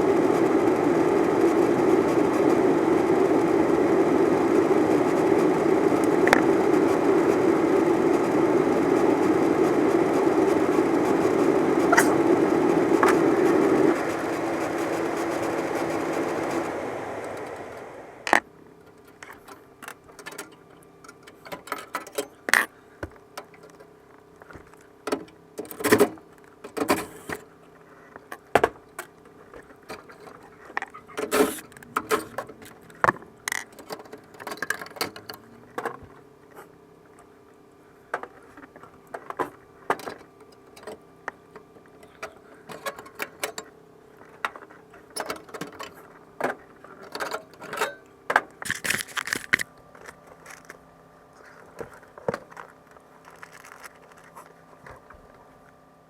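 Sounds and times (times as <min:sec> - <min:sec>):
furnace humming: 0:00.0 - 0:18.4.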